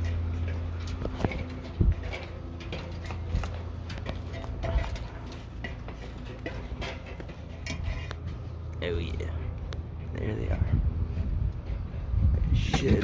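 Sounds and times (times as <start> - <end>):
knocks of climbing a ladder: 0.0 - 8.4.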